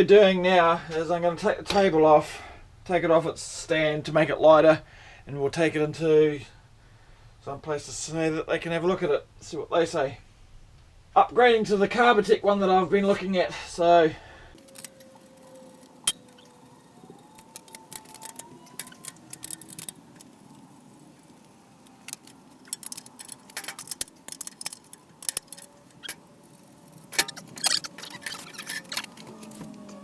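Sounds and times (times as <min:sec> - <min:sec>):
metallic clicks and clinks: 0:14.6 - 0:30.0.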